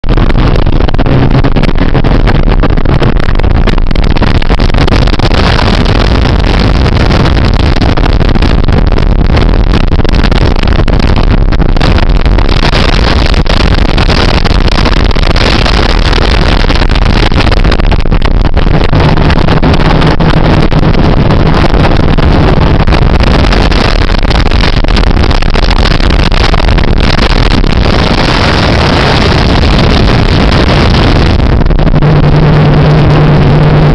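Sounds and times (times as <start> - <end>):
motorboat engine running: 0.0 - 33.9.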